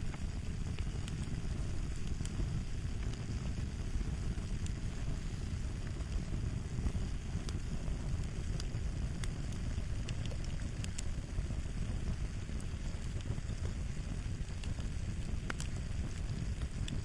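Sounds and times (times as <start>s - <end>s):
fire crackling: 0.0s - 17.0s
sharp pops and snaps: 0.0s - 17.0s.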